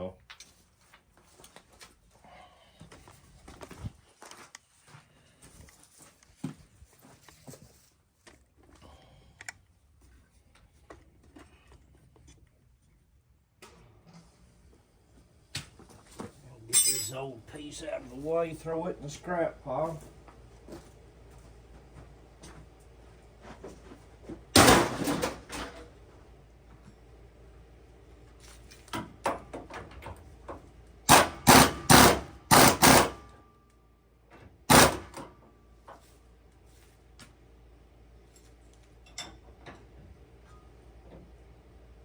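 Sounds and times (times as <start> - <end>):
metal clatter: 16.7 - 17.2
metal parts clanking: 16.7 - 17.2
metal ringing: 16.7 - 17.2.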